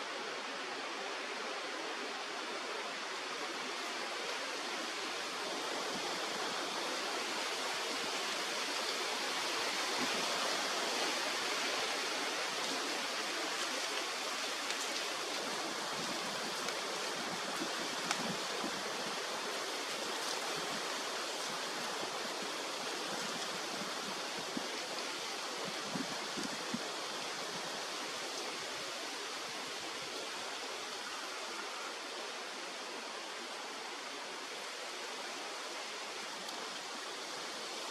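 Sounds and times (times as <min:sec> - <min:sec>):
river water rushing: 0:00.0 - 0:37.9
faint ticks: 0:18.0 - 0:18.3.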